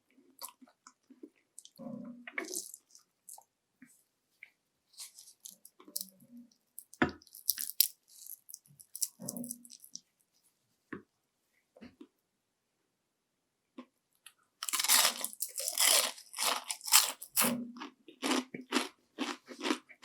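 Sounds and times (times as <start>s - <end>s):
crunch of crisp coating: 0.4s - 3.5s, 4.9s - 10.1s, 14.2s - 19.9s
wet chewing sounds: 1.6s - 3.4s, 6.8s - 10.0s, 14.6s - 17.6s.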